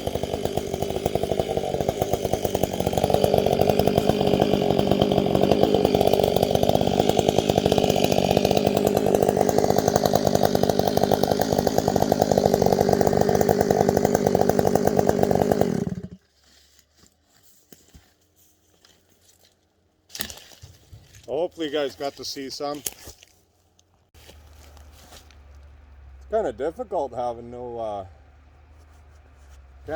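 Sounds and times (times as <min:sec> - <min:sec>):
chainsaw running at high speed: 0:00.0 - 0:16.2.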